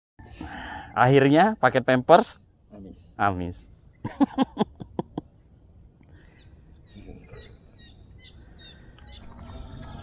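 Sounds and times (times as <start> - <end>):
small birds chirping: 2.4 - 10.0.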